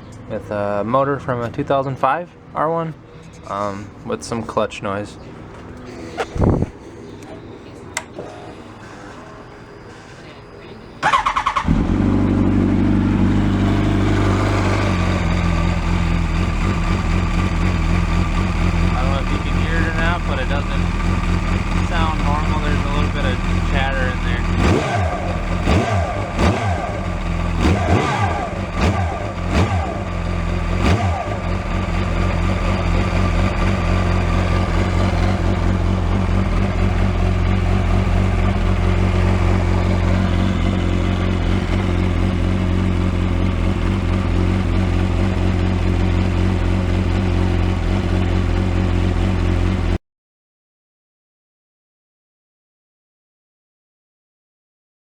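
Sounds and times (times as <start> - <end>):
motorcycle engine revving and idling: 11.0 - 50.0.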